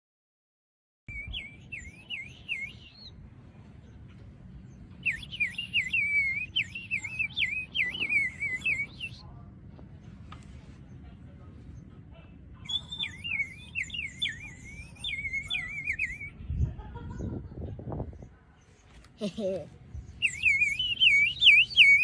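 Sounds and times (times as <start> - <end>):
water bird whistle warbling trills: 5.1 - 9.2, 12.7 - 16.3, 20.2 - 22.0.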